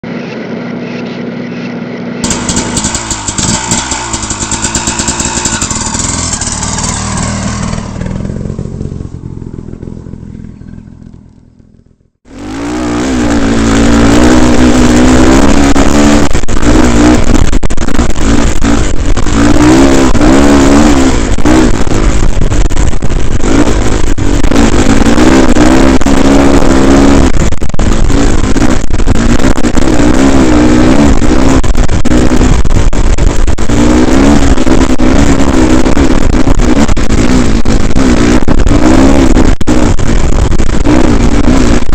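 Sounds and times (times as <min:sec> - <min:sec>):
dirt bike engine revving: 0:02.2 - 0:41.9
wind noise on microphone: 0:12.3 - 0:41.9.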